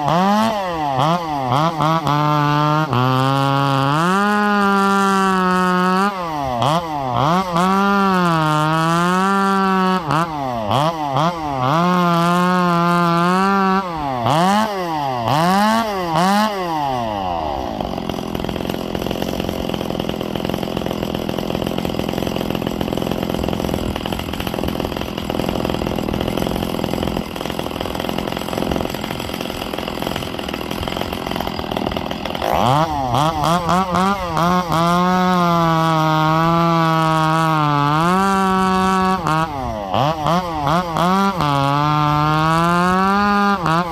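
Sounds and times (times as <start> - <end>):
chainsaw cutting through wood: 0.0 - 43.9
chainsaw revving: 0.0 - 43.9.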